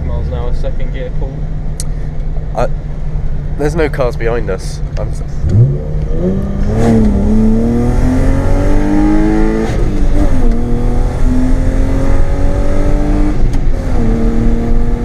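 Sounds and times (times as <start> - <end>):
car engine accelerating hard: 3.5 - 15.0.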